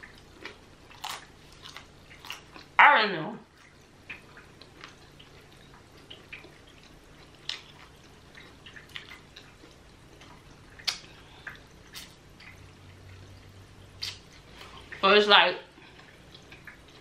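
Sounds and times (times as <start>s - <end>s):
person chewing food: 0.0s - 2.8s, 3.5s - 15.0s, 15.8s - 17.0s
wet mouth smacks and clicks: 10.8s - 12.2s, 14.0s - 14.3s.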